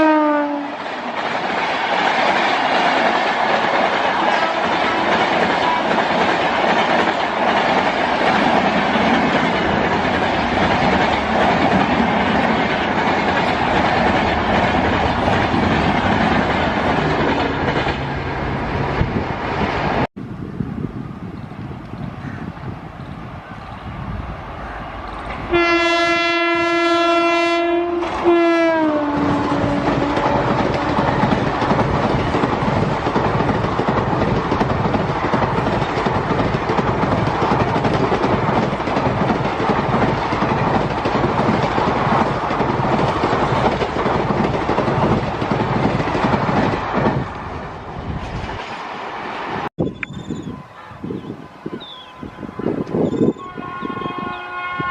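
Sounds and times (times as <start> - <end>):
train horn blast: 0.0 - 0.8, 4.2 - 5.9, 25.4 - 31.4, 50.3 - 54.9
train wheels clattering on rails: 0.7 - 18.2, 28.0 - 47.4.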